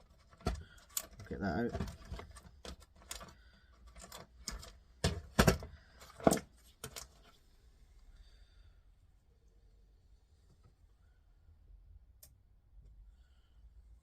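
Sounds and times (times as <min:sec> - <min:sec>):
hand tools clicking on parts: 0:00.0 - 0:07.1.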